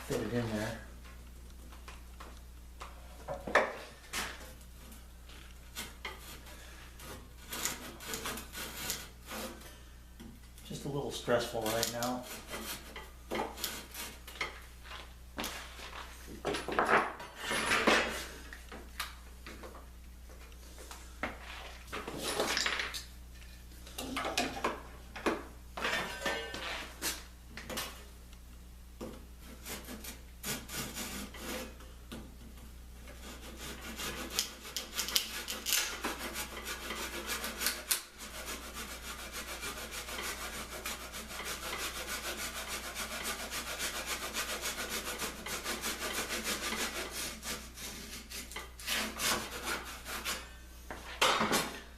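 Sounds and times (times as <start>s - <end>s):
scraping and knocking on wood: 11.7s - 18.9s
rubbing on wood: 33.1s - 50.4s.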